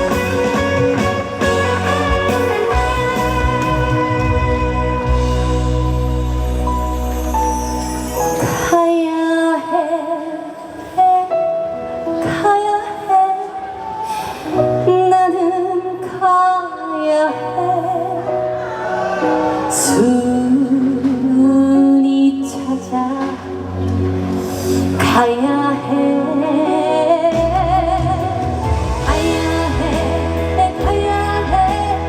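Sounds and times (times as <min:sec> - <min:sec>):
backing music: 0:00.0 - 0:09.1, 0:18.2 - 0:32.0
woman singing with vibrato: 0:08.6 - 0:11.4, 0:19.7 - 0:23.7, 0:25.0 - 0:32.0.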